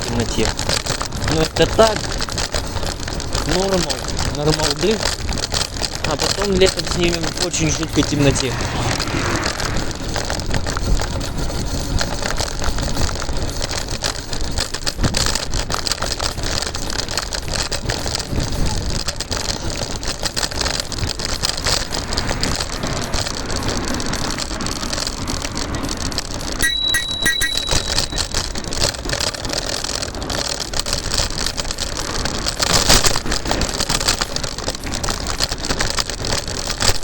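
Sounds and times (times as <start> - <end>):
scooter wheels rolling on asphalt: 0.0 - 37.0
wind on microphone: 5.2 - 15.7
high-pitched tone: 26.6 - 28.4.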